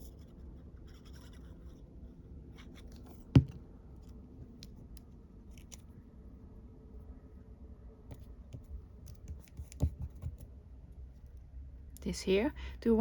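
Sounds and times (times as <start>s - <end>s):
sharp knock on tabletop: 3.4s - 3.6s.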